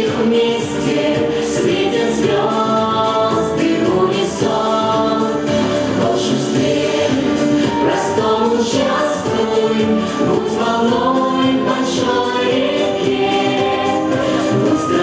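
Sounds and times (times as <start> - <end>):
musical backing: 0.0 - 15.0
vocal ensemble singing: 0.0 - 15.0.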